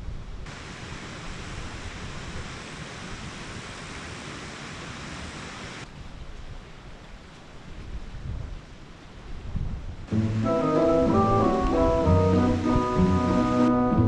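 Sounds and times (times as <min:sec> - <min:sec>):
heavy rain hiss: 0:00.4 - 0:09.4, 0:10.0 - 0:14.0
wind rumble on microphone: 0:05.9 - 0:10.4, 0:11.0 - 0:14.0.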